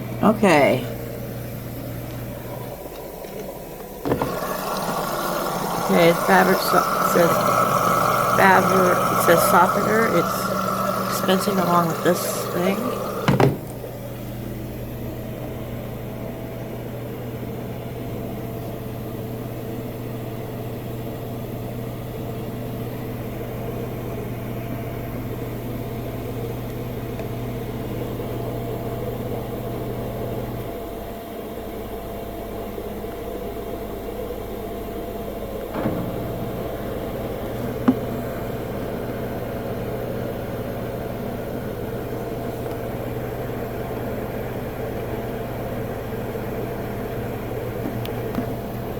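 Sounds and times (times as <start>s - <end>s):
washing machine hum: 0.0s - 48.9s
washing machine click: 3.9s - 4.7s, 13.0s - 13.8s.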